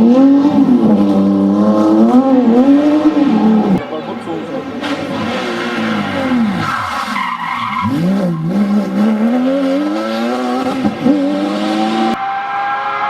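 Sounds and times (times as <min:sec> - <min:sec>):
sports car engine revving: 0:00.0 - 0:13.0
steady engine note: 0:00.6 - 0:06.6.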